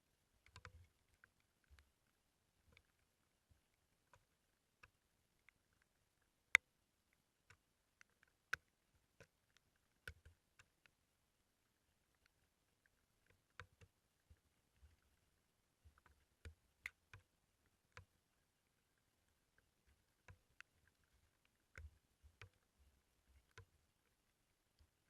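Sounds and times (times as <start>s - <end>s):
light taps and clicks: 0.4s - 6.7s.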